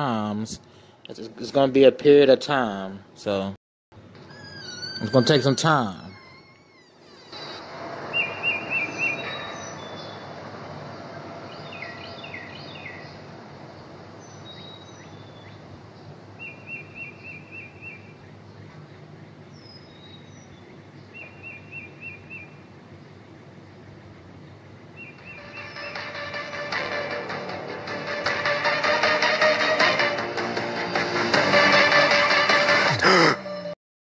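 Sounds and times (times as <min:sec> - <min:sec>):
outdoor ambience: 0:00.0 - 0:33.8
bird trilling: 0:04.2 - 0:22.7, 0:25.0 - 0:26.5
short falling bird chirps: 0:06.1 - 0:10.3.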